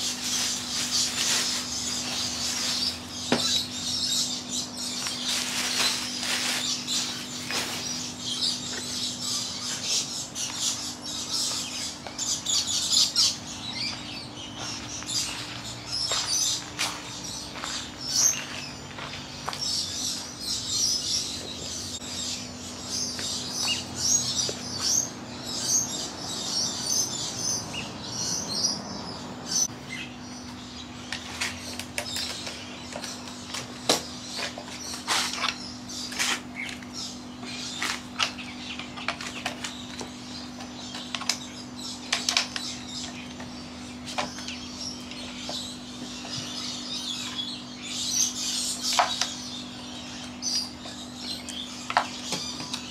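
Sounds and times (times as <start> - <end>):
air conditioner hum: 0.0 - 52.9
birds chirping: 0.0 - 52.9.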